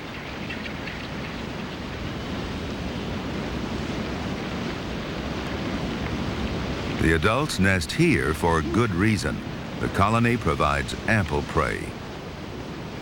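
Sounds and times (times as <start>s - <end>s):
wind: 0.0s - 13.0s
surf rushing: 6.6s - 12.2s.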